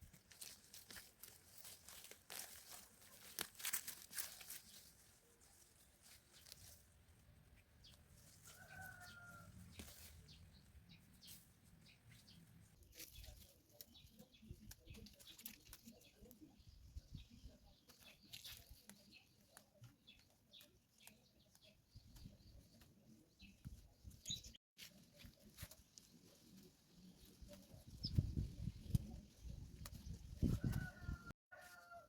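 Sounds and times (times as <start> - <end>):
faint clicks and rustles: 0.0 - 16.5.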